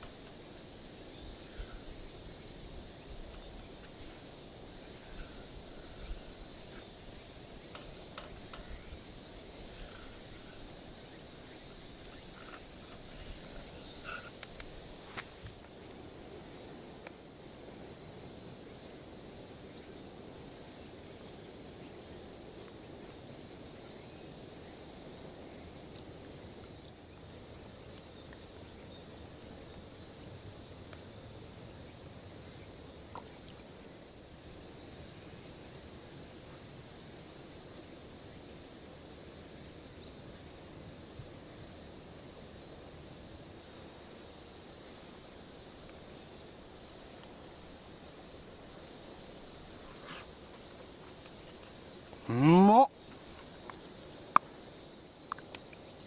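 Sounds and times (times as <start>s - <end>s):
insect chirps: 0.0s - 56.0s
faint clicks: 14.1s - 16.0s, 55.3s - 55.9s.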